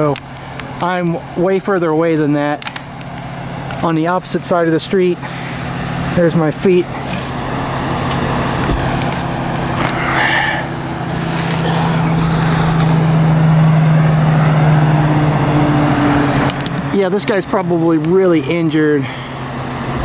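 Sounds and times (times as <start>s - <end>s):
street noise: 0.0s - 20.0s
vehicle engine running: 0.0s - 20.0s.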